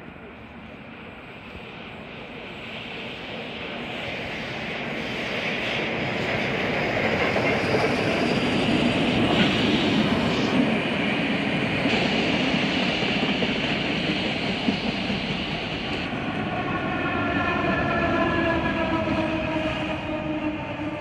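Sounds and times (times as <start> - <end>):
train wheels clattering on rails: 2.9 - 16.4.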